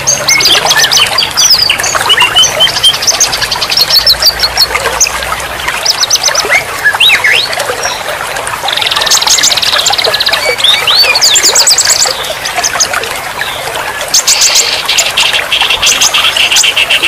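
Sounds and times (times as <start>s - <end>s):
songbirds singing: 0.0s - 17.0s
trickle of running water: 0.0s - 17.0s.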